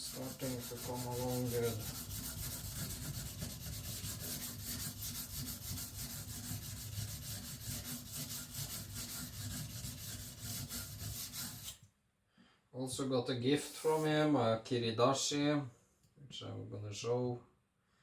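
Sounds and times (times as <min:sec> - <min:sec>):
knife scraping on whetstone: 0:00.0 - 0:11.8.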